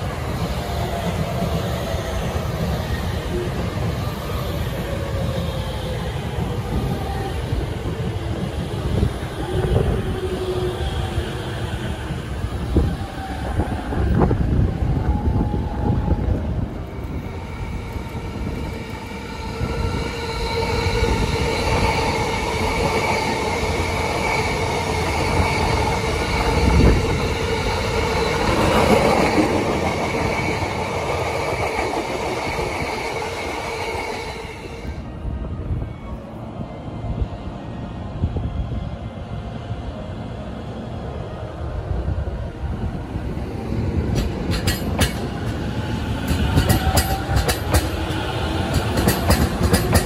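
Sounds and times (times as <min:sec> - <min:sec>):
train rumble with whine: 0:00.0 - 0:50.0
wheels clicking over rail joints: 0:44.1 - 0:50.0.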